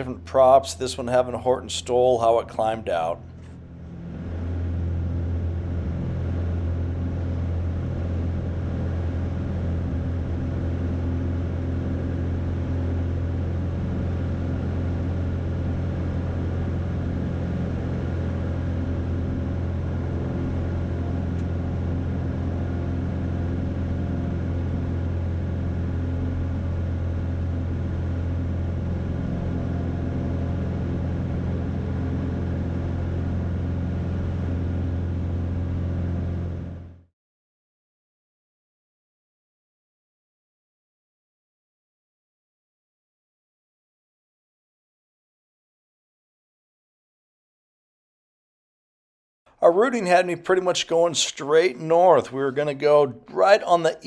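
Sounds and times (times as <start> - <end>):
airplane engine and propeller droning: 0.0 - 37.0, 49.6 - 54.0.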